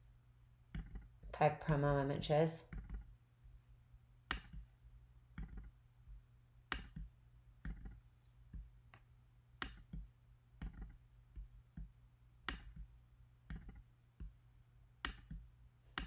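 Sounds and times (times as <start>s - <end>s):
computer mouse clicking: 2.7s - 3.1s, 6.7s - 8.0s, 9.6s - 10.0s, 10.6s - 11.0s, 11.8s - 12.9s, 15.0s - 16.0s.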